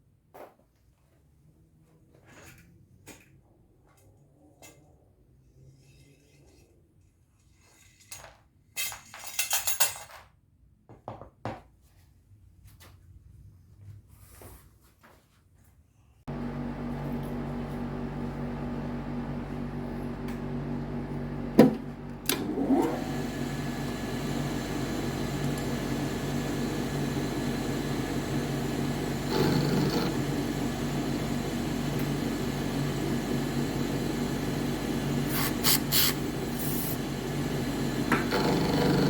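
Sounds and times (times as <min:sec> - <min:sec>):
motor humming: 0:16.3 - 0:39.0.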